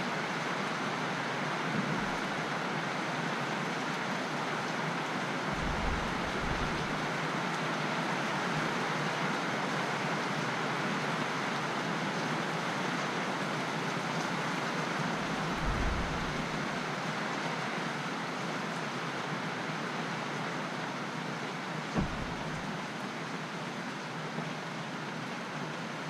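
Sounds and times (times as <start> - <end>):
steady rain falling: 0.0 - 26.0
brief low thump: 5.6 - 7.0, 15.4 - 16.6, 21.9 - 22.7.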